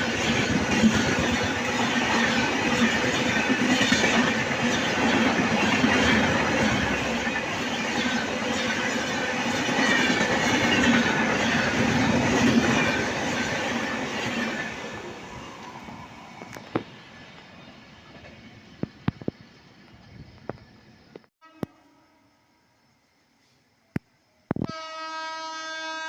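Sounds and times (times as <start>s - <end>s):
train wheels clattering over rails: 0.0s - 20.8s.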